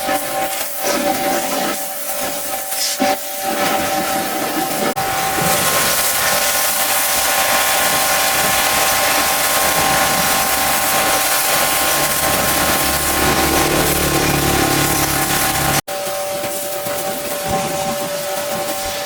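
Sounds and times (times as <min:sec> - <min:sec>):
pump whine: 0:00.0 - 0:19.0
pressure washer spraying: 0:05.2 - 0:15.8
low rumble: 0:10.8 - 0:15.8.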